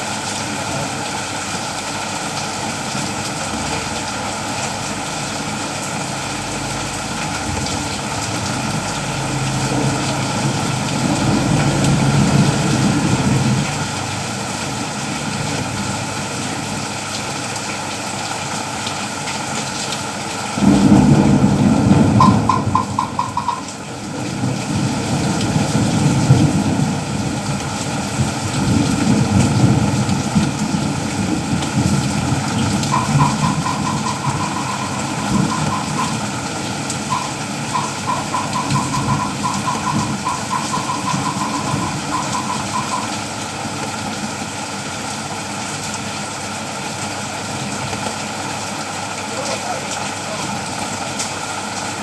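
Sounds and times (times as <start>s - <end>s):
steady rain: 0.0s - 52.0s
vehicle engine running: 2.7s - 15.2s, 20.6s - 23.7s, 28.7s - 43.2s
rapid short high beeps: 22.2s - 23.7s, 32.5s - 43.2s.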